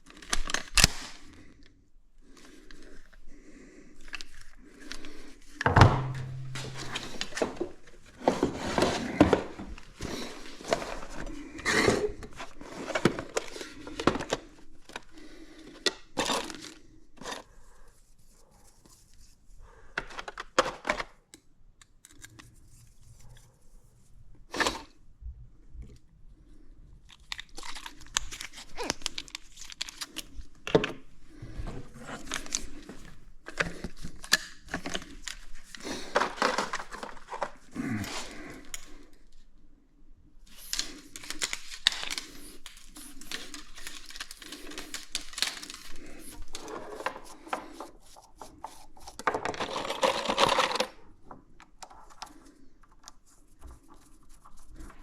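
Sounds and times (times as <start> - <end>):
sharp knocks: 5.7 - 7.3
rustling crinkling and tearing: 27.0 - 30.7, 32.0 - 39.4, 40.4 - 51.1.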